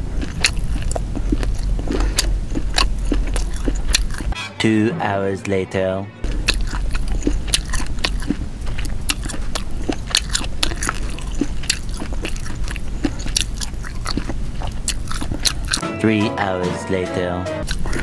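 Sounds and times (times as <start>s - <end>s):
chewing with mouth clicks: 0.0s - 4.4s, 6.3s - 15.8s, 17.6s - 18.0s.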